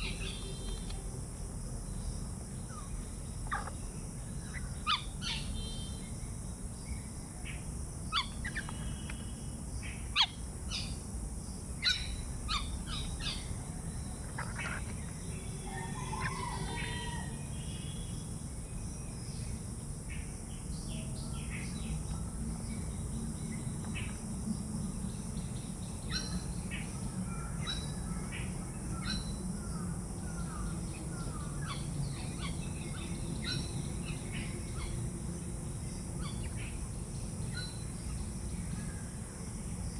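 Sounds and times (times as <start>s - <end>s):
birds chirping: 0.0s - 1.2s, 1.8s - 7.2s, 8.0s - 19.6s
low background hum: 0.0s - 39.9s.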